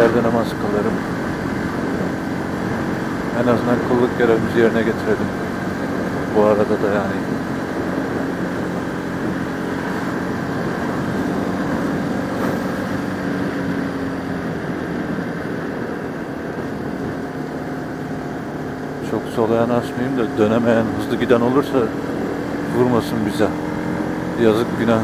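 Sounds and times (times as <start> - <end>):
motorcycle engine cruising: 0.0 - 25.0
wind and road noise: 0.0 - 25.0.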